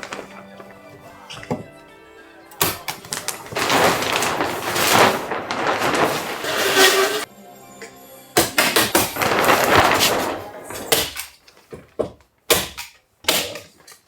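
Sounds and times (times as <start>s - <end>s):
loud rushing noise: 3.4s - 7.3s.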